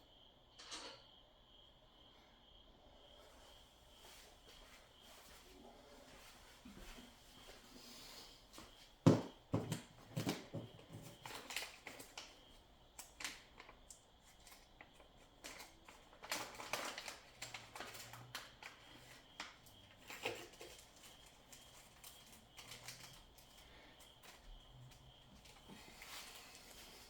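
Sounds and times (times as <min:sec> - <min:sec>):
packaging rustling and snipping: 0:15.4 - 0:19.2, 0:20.0 - 0:23.6.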